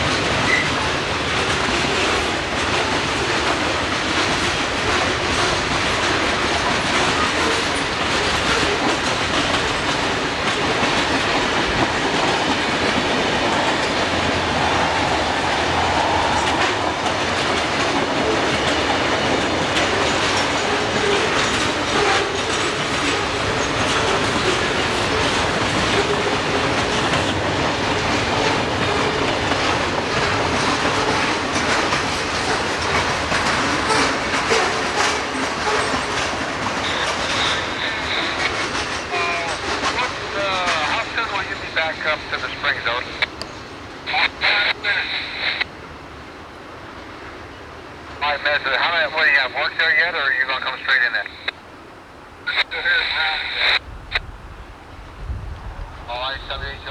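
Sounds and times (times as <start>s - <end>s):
wheels clicking over rail joints: 0.0s - 41.0s
freight train cars rolling: 0.0s - 56.9s.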